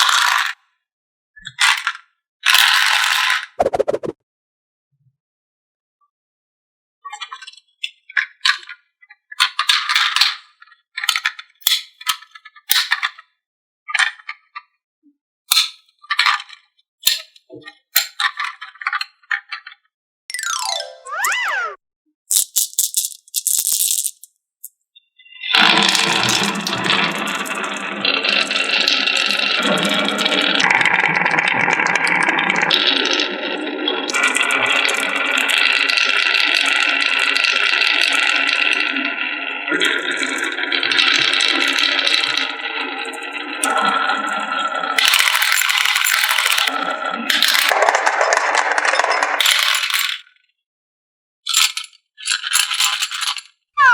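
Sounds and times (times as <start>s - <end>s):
marbles clattering down a track: 0.0s - 0.6s, 1.7s - 3.5s, 20.3s - 24.3s, 25.6s - 38.9s, 39.8s - 50.3s, 51.5s - 53.5s
marbles clattering down wooden run: 22.3s - 24.3s, 47.3s - 50.2s, 51.6s - 53.5s.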